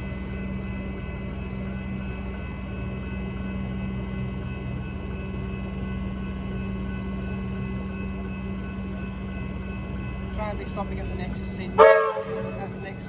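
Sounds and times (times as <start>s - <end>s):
electric train running: 0.0s - 13.0s.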